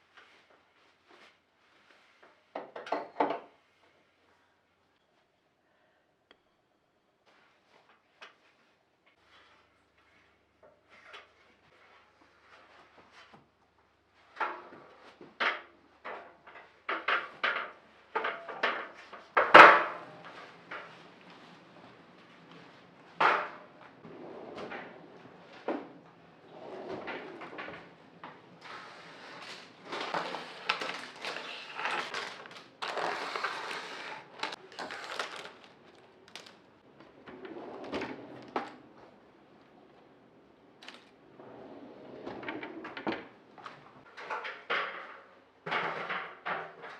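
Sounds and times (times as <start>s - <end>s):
rustling and scraping: 20.0s - 36.6s.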